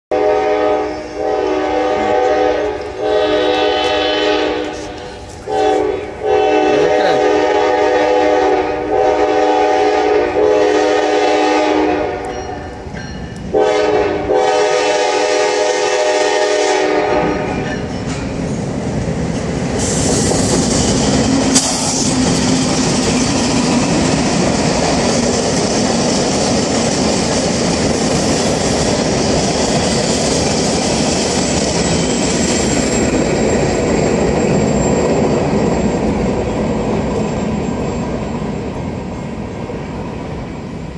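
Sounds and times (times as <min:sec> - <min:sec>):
train air horn: 0:00.1 - 0:12.3, 0:13.5 - 0:17.6
freight cars rumbling on rails: 0:00.3 - 0:40.9.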